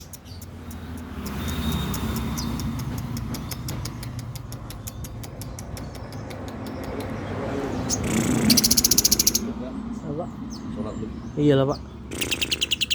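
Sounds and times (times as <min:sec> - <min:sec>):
lovebird chattering song: 0:00.0 - 0:09.6, 0:10.5 - 0:12.9.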